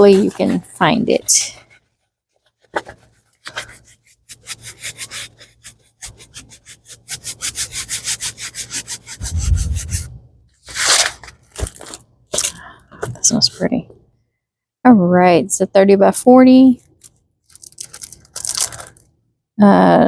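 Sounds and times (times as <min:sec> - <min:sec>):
hands scratching packaging: 0:02.6 - 0:09.2, 0:17.0 - 0:19.0
low thud: 0:09.2 - 0:10.5.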